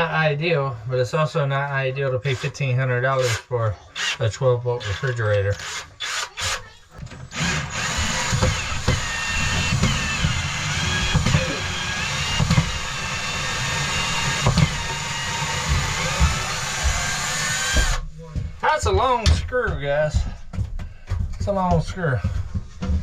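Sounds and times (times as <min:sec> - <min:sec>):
cordless drill motor whine: 0:05.6 - 0:18.0.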